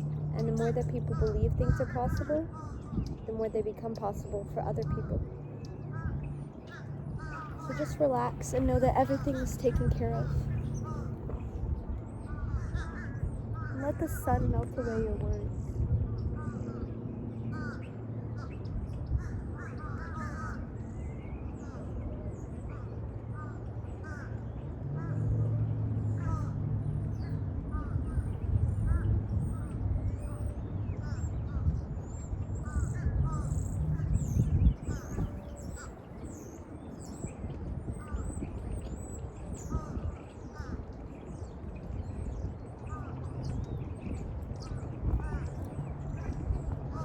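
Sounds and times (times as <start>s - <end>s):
steady low rumble: 0.0s - 20.0s, 20.7s - 47.0s
songbirds chirping and whistling: 0.0s - 23.5s, 27.1s - 47.0s
crows cawing: 12.4s - 13.8s, 19.2s - 20.7s.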